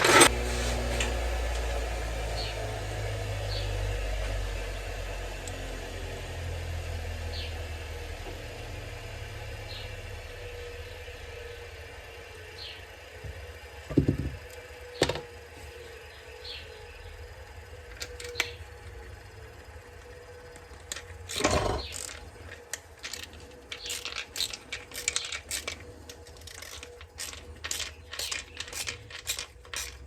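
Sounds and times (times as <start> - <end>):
knocks and clicks of hard objects: 13.2 - 14.4.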